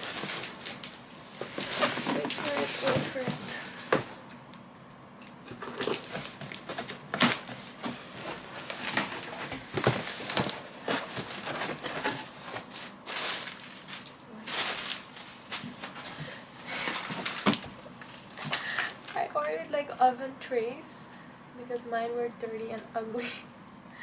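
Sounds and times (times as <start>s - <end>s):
packaging rustling: 0.0s - 4.3s, 5.5s - 19.2s.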